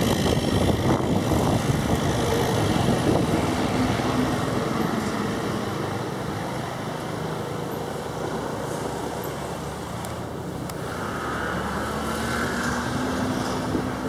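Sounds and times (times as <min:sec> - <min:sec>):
turboprop engine rumble: 0:00.0 - 0:08.3.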